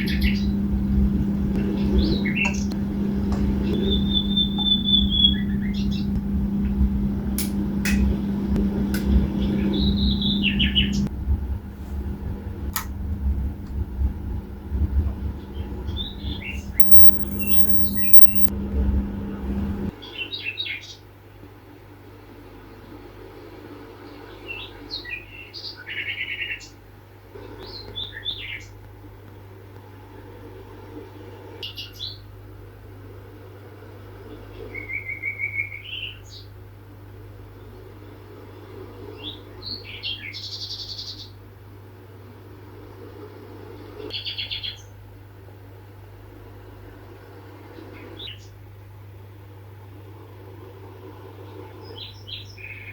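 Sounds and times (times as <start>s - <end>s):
low hum and rumble: 0.0s - 20.0s
small birds chirping: 16.8s - 18.5s.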